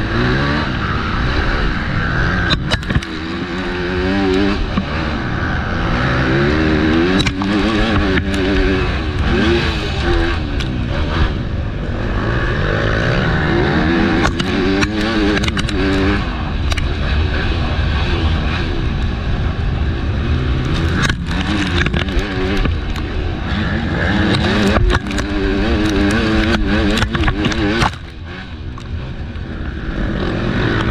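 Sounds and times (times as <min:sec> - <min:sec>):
motocross bike engine revving: 0:00.0 - 0:30.9
wind rumble: 0:00.0 - 0:30.9
sharp clicks and knocks: 0:02.4 - 0:05.0, 0:06.8 - 0:11.0, 0:13.9 - 0:17.2, 0:20.5 - 0:30.9.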